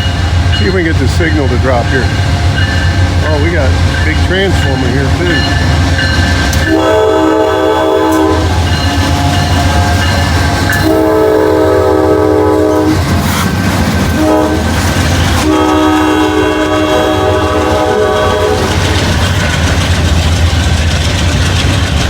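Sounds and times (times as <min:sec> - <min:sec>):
freight train rumble and rail clatter: 0:00.0 - 0:22.0
locomotive air horn blasts: 0:06.6 - 0:13.0, 0:14.2 - 0:18.8.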